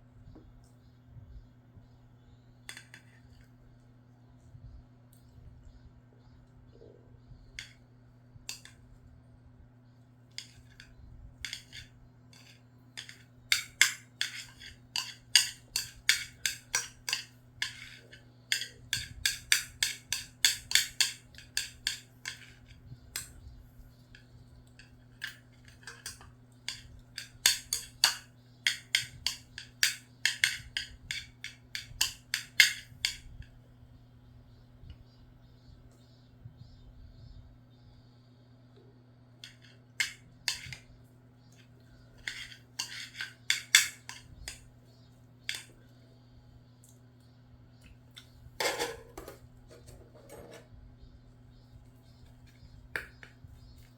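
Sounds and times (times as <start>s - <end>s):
faint low hum: 0.0s - 53.9s
utensil tapping a bowl: 11.4s - 23.3s, 24.1s - 33.3s, 39.4s - 40.8s, 42.2s - 44.6s, 52.9s - 53.9s.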